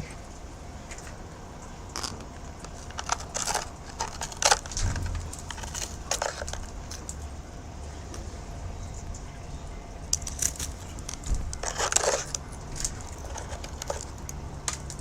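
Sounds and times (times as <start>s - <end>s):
steady low hum: 0.0s - 15.0s
scratchy rustles and crackles: 2.0s - 7.3s, 10.2s - 15.0s.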